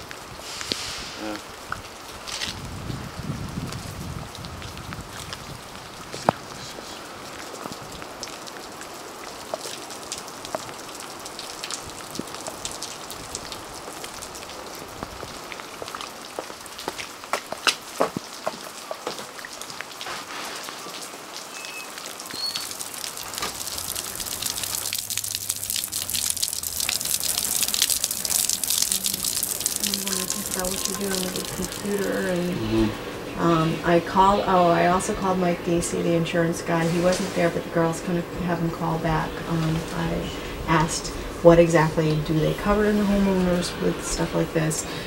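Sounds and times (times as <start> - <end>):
raindrops ticking on hard surfaces: 0.0 - 45.0
steady rain hiss: 0.0 - 45.0.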